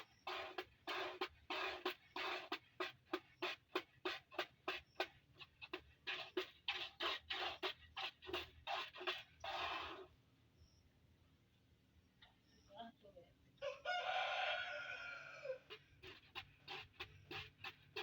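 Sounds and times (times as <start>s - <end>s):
milk squirting into container: 0.0s - 10.1s, 15.7s - 18.0s.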